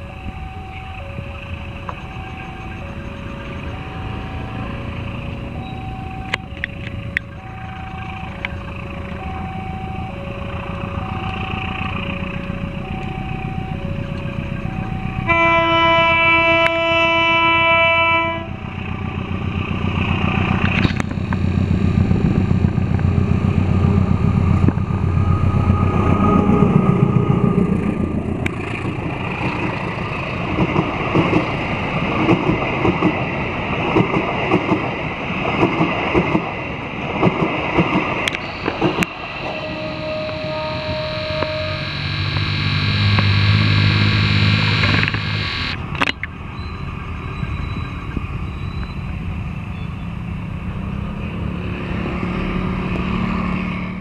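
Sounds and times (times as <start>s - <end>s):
level-crossing alarm two-tone signal: 0.0s - 17.1s, 38.4s - 45.8s
train engine rumble: 0.0s - 54.0s
train horn: 15.1s - 18.7s, 39.2s - 45.3s
wheels clacking over rail joints: 28.4s - 39.6s.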